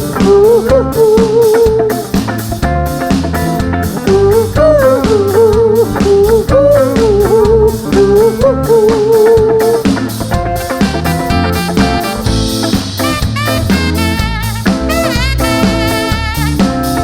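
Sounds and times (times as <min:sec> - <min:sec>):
rock band playing: 0:00.0 - 0:17.0
wavering lead melody: 0:10.3 - 0:17.0.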